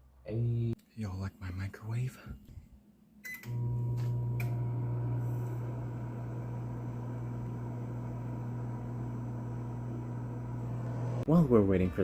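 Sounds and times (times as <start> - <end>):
microwave click: 3.3 - 10.2
microwave oven humming: 3.4 - 11.2.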